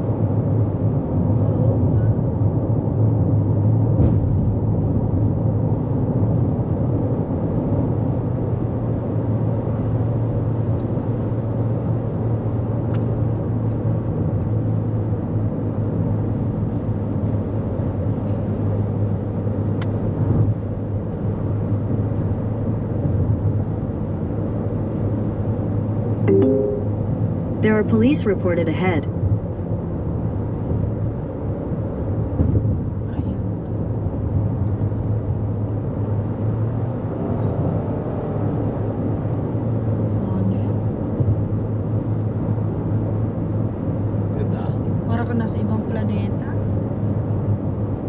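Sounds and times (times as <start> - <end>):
road and tyre noise: 0.0 - 48.0
low hum: 26.3 - 28.3.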